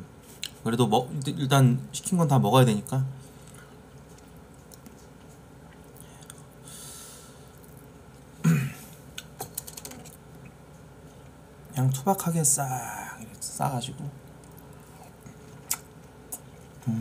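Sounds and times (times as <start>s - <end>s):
quiet chewing with mouth clicks: 0.3s - 0.6s, 3.3s - 6.6s, 7.4s - 8.0s, 14.2s - 16.9s.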